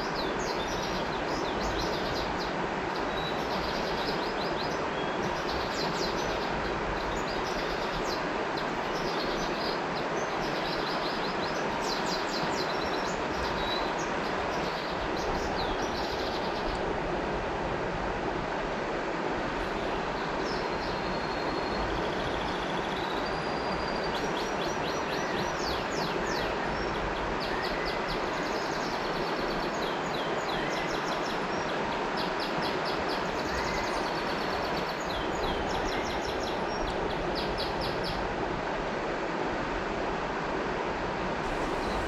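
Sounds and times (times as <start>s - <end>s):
river water flowing: 0.0s - 42.0s
birds trilling: 41.5s - 42.0s.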